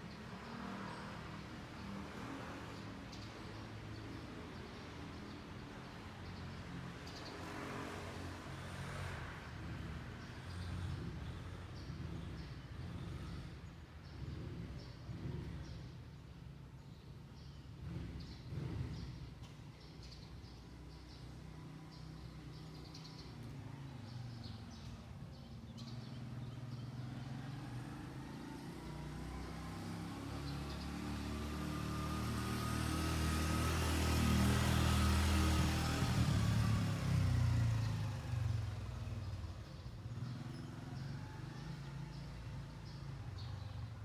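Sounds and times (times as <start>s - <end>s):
motor vehicle passing by: 5.8s - 15.8s, 20.5s - 44.0s.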